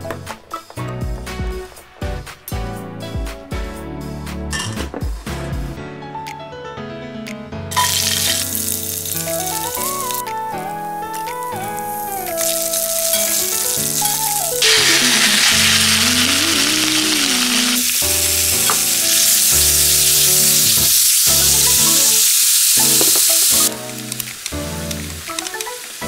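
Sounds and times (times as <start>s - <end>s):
background music: 0.0s - 26.0s
meat sizzling in a wok: 7.7s - 10.2s, 11.1s - 26.0s.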